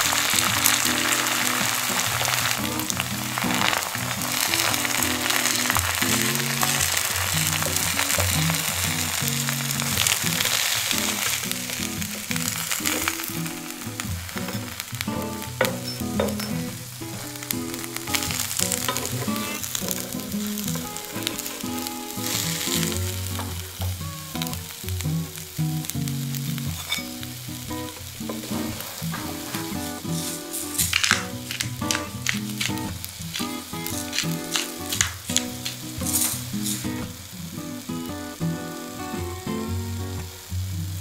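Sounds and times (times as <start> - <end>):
food sizzling in a frying pan: 0.0 - 41.0
metal spatula scraping a pan: 28.3 - 32.0.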